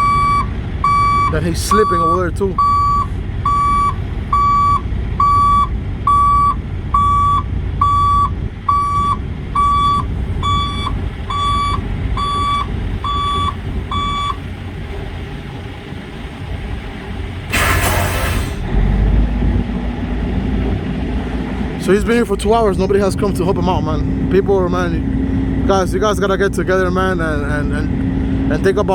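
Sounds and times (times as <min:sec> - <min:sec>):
truck backup alarm beeping: 0:00.0 - 0:16.9
diesel engine rumble: 0:00.0 - 0:28.9.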